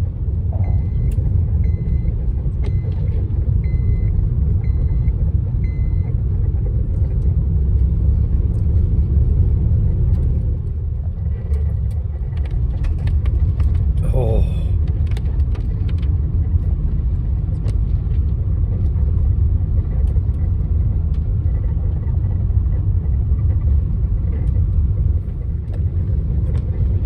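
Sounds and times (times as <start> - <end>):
van road and engine rumble: 0.0 - 27.0.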